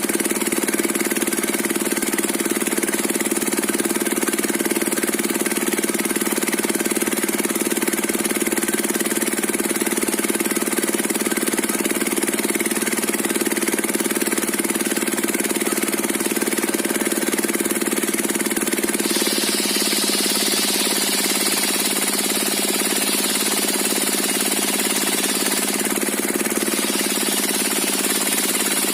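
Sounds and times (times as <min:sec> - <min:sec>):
diesel engine running steadily: 0:00.0 - 0:28.9.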